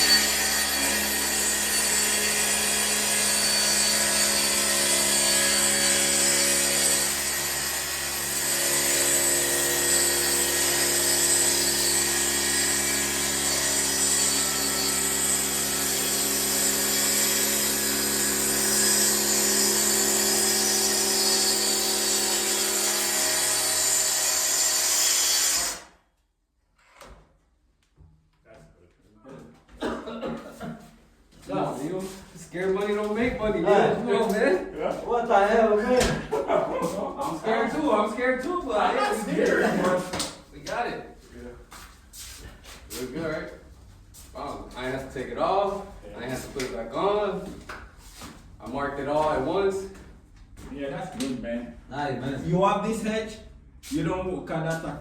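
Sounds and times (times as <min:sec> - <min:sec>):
track saw cutting wood: 0:00.0 - 0:26.0.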